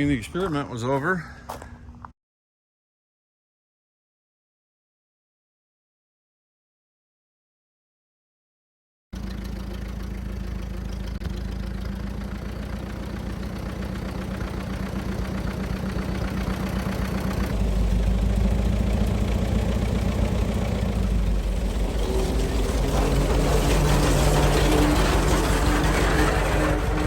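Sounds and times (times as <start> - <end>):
tractor engine running: 9.2 - 27.0.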